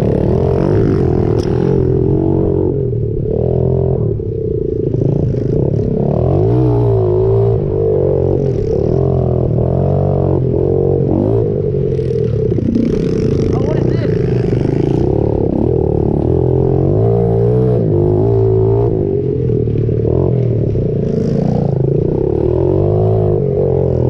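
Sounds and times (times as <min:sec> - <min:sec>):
pit bike engine revving: 0:04.9 - 0:24.0.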